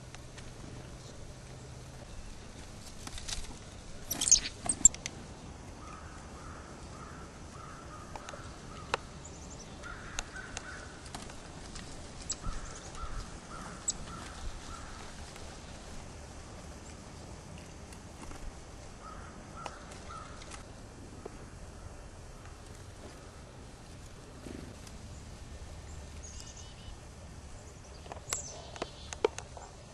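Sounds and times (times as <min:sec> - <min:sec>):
birds calling: 0:03.4 - 0:16.0, 0:19.0 - 0:23.5, 0:25.0 - 0:29.8.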